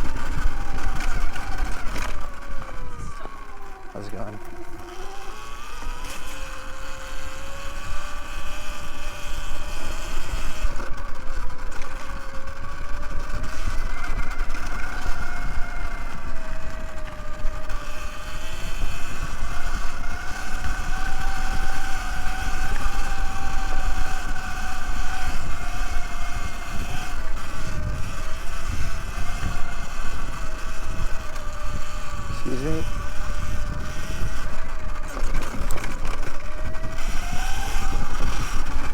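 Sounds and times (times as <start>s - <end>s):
wind on microphone: 0.0s - 3.4s, 12.2s - 38.9s
electric motor whining: 0.0s - 38.9s
tyres rumbling on trail: 0.0s - 38.9s.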